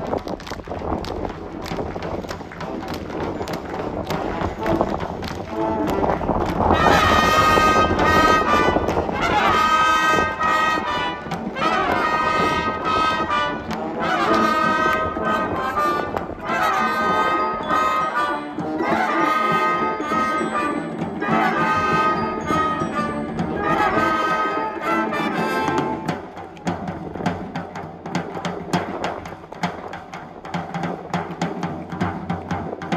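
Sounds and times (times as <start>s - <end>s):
drum strokes: 0.0s - 32.9s
brass playing held chords: 3.4s - 26.4s.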